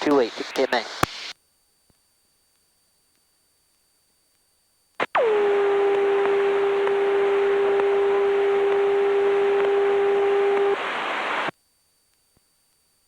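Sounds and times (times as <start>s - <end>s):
radio hiss: 0.0s - 1.4s, 5.0s - 11.5s.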